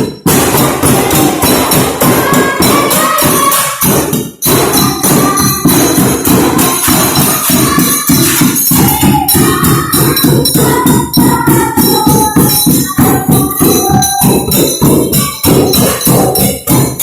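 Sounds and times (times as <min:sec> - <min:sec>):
percussion on household objects: 0:00.0 - 0:17.0
wavering tune: 0:04.5 - 0:16.8.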